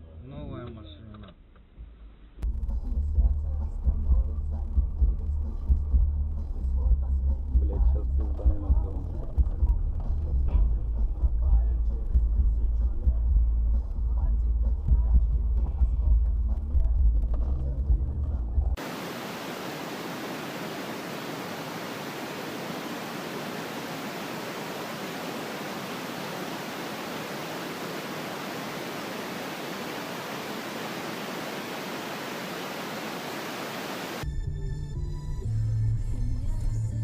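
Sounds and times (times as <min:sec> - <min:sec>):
static-like hiss: 0:18.8 - 0:34.2.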